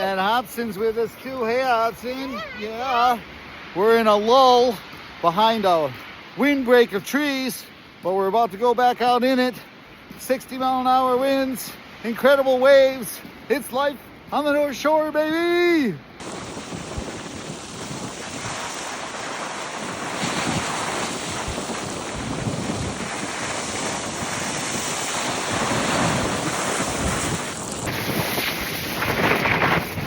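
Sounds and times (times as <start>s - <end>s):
storm waves breaking on shore: 0.0s - 30.0s
wind buffeting microphone: 16.2s - 30.0s.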